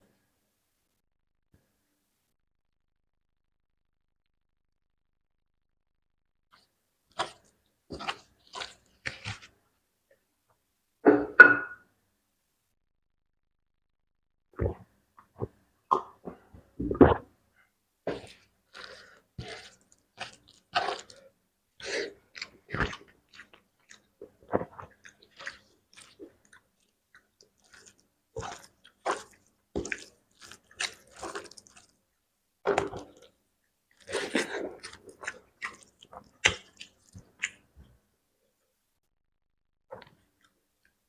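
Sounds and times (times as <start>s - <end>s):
mouth chewing food: 7.1s - 9.6s, 14.6s - 17.3s, 18.1s - 32.0s, 32.6s - 38.0s, 39.9s - 41.0s.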